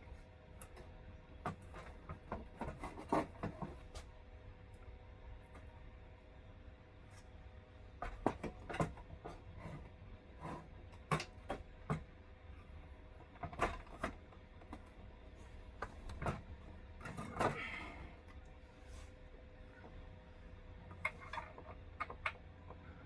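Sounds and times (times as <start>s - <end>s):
steady low hum: 0.0s - 23.0s
clicks and taps on metal and plastic: 0.6s - 3.8s, 8.0s - 12.2s, 15.8s - 17.6s, 20.9s - 22.9s
scrape: 2.6s - 4.1s, 9.3s - 10.8s, 18.7s - 19.3s.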